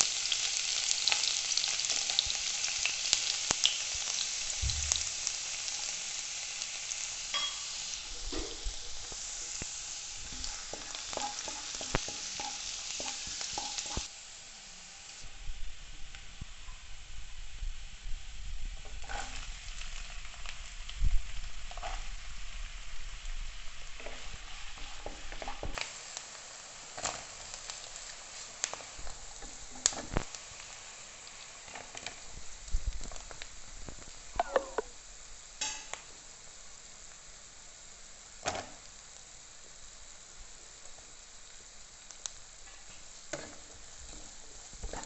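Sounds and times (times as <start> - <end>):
garlic sizzling in hot oil: 0.0 - 45.0
vegetables frying: 0.0 - 45.0
wooden spatula scraping pan: 10.2 - 14.1, 18.8 - 19.5, 42.7 - 45.0.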